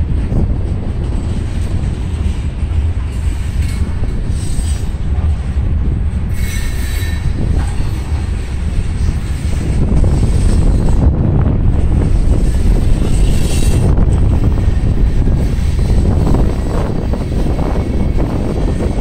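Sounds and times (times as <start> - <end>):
train wheels rumbling on rail: 0.0 - 19.0
high wheel squeal: 6.3 - 11.1, 12.2 - 19.0.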